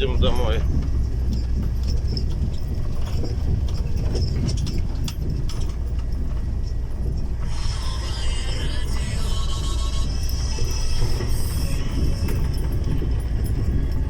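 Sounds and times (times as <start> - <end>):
rattles and clicks: 0.0 - 14.0
road noise inside cab: 0.0 - 14.0
vehicle engine drone: 0.0 - 14.0
background music: 7.5 - 14.0.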